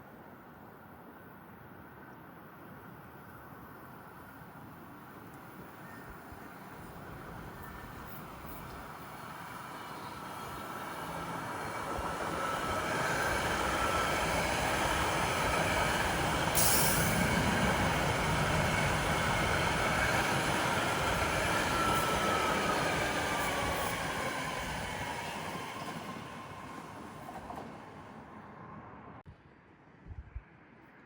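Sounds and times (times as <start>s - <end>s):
train rumbling past: 1.2s - 29.3s
short sharp hiss: 16.6s - 17.2s.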